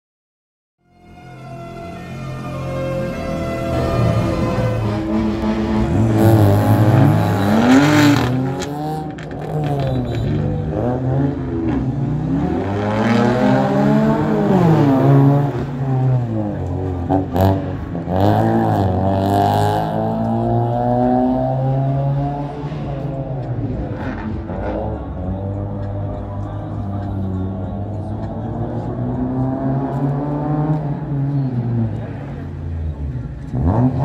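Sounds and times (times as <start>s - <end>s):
car engine revving: 2.2s - 34.0s.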